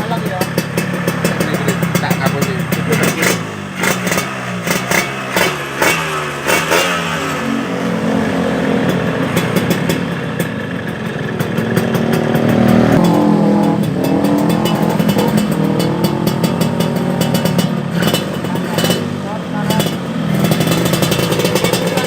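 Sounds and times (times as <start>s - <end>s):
two-stroke motorcycle engine revving: 0.0s - 22.0s.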